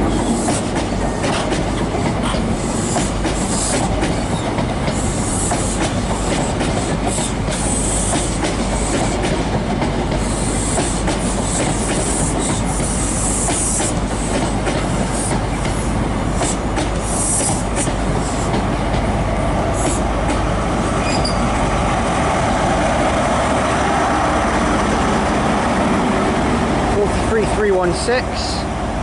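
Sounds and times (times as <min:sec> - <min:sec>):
train rumbling: 0:00.0 - 0:29.0
wheels clicking over rail joints: 0:00.1 - 0:19.1
high wheel squeals: 0:21.0 - 0:21.6.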